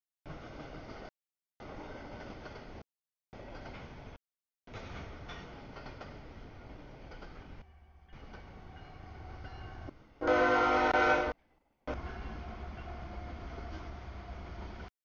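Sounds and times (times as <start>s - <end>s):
train wheels rumbling on rails: 3.4s - 14.9s
locomotive horn chord: 10.2s - 12.1s.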